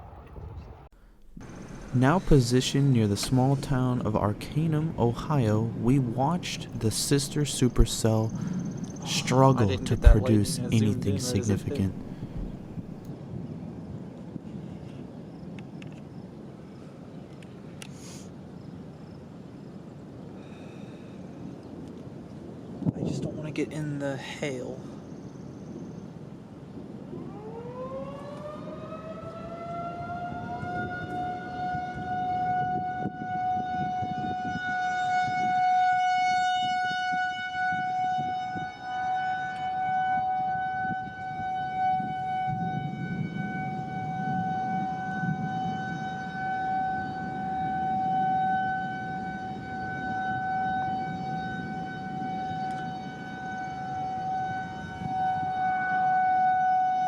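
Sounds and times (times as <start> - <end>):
tornado siren winding up: 0.0 - 13.1, 27.1 - 57.0
low rumbling noise: 0.0 - 13.2.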